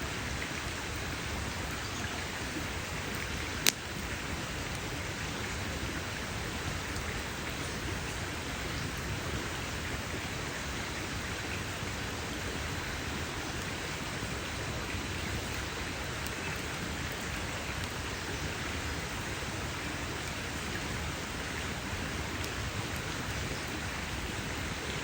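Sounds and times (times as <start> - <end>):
campfire crackling: 0.0 - 25.0
sharp fire pops: 3.6 - 4.0.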